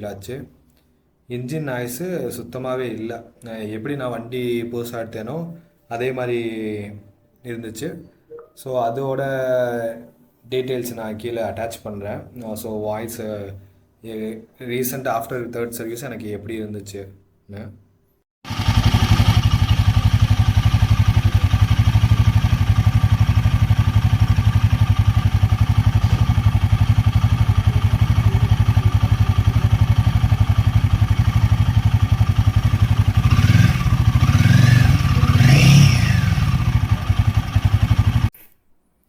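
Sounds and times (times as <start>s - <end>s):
motorcycle engine idling and revving: 18.5s - 38.3s.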